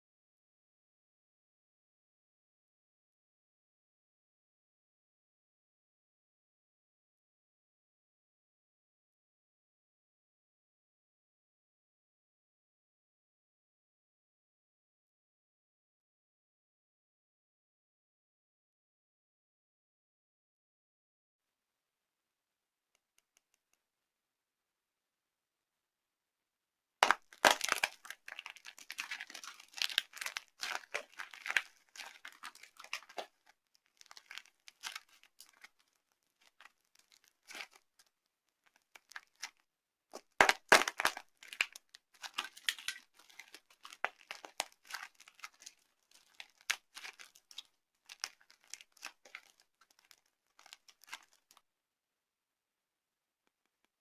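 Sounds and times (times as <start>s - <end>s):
dry soap crunching and crackling: 27.0s - 39.6s, 40.2s - 51.6s.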